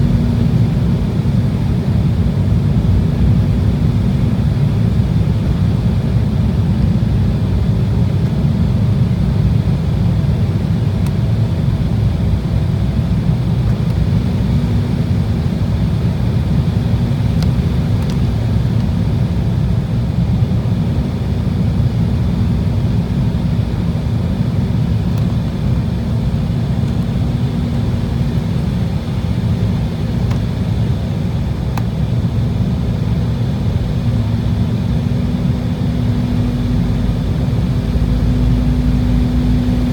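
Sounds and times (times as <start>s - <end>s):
jet engines and airflow roar: 0.0s - 39.9s
steady hum: 0.0s - 39.9s.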